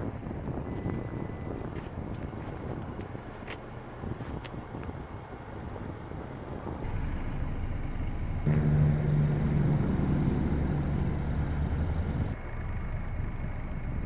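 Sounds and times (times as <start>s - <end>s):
car engine revving: 6.9s - 12.4s.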